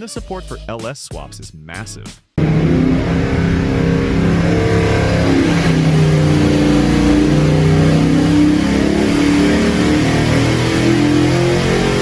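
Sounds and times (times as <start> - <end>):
car engine revving: 2.4 - 12.0.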